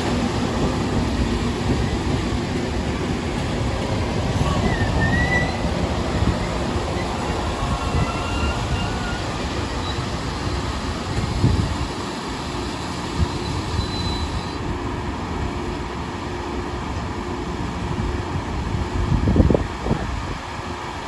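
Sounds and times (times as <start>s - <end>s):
train wheels rumbling on rails: 0.0s - 21.0s
faint thin squeals: 7.0s - 10.1s.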